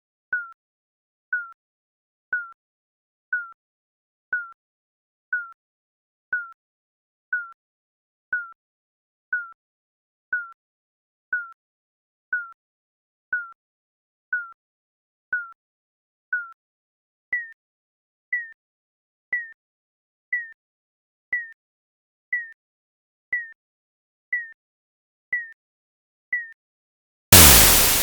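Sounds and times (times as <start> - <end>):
countdown timer beeping: 27.4 - 28.0.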